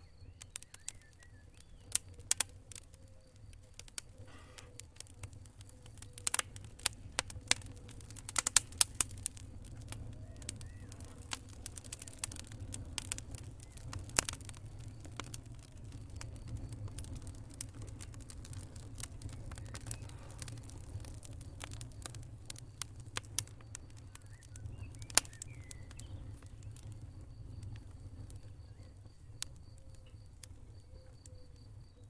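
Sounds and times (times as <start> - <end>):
wood fire crackling and popping: 0.0 - 32.0.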